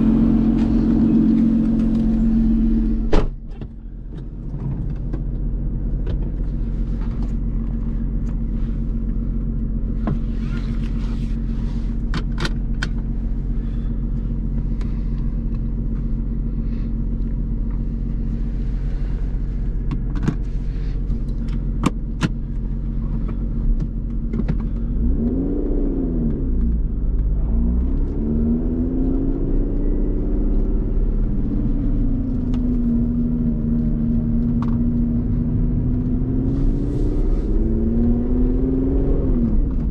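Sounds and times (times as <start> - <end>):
engine revving through gear changes: 0.0 - 3.4, 18.4 - 39.9
car engine running: 0.0 - 39.9.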